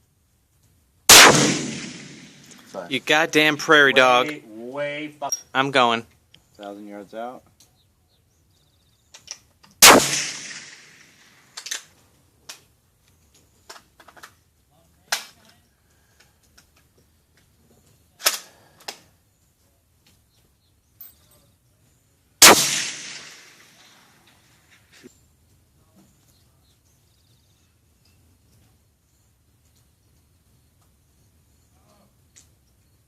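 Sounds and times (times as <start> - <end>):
rifle shots with rolling echo: 1.1 - 2.9, 9.8 - 11.8, 22.4 - 24.7.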